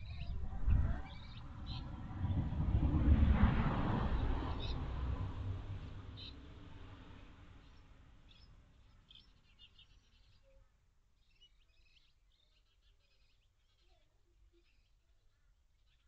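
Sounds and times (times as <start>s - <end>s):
faint bird chirps: 0.0s - 1.8s, 7.7s - 16.0s
low rumble: 0.0s - 8.0s.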